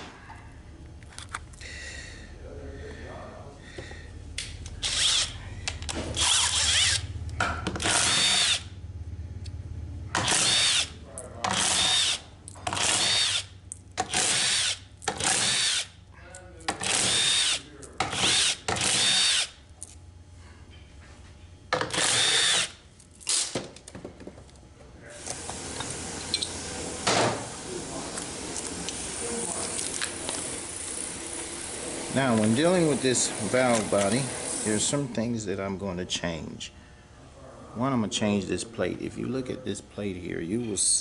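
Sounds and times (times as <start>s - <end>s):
power driver whining bursts: 6.1s - 8.8s, 10.1s - 11.0s, 11.6s - 13.5s, 16.8s - 19.6s, 21.9s - 22.8s.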